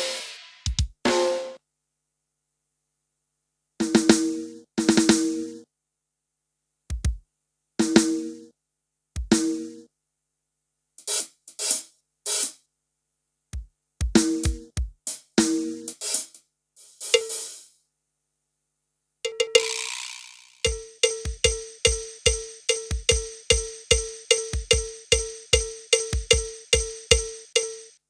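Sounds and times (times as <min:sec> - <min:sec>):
cymbal or hi-hat strokes: 0:00.0 - 0:01.6, 0:15.1 - 0:17.7, 0:19.6 - 0:27.9
pitched drum strikes: 0:00.0 - 0:01.6, 0:20.7 - 0:27.9
kick drum thumps: 0:00.7 - 0:01.0, 0:06.9 - 0:07.2, 0:09.2 - 0:09.4, 0:13.6 - 0:15.0, 0:20.7 - 0:27.4.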